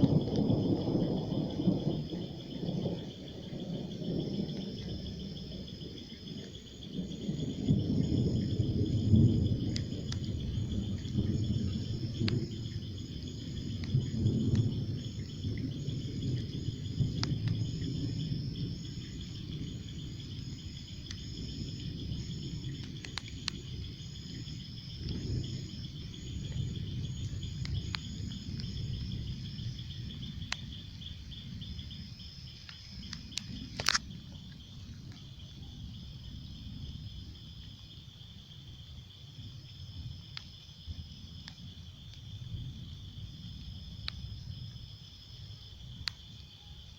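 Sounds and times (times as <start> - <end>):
insects trilling and chirping: 0.0 - 46.9
sharp clicks: 32.6 - 34.0.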